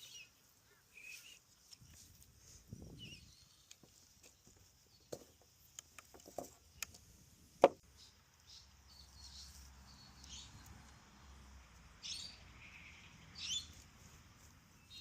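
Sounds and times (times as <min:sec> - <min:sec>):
birds chirping faintly: 0:00.0 - 0:15.0
light wooden clicks and knocks: 0:03.6 - 0:07.9
loud sharp wooden knock: 0:07.6 - 0:07.8.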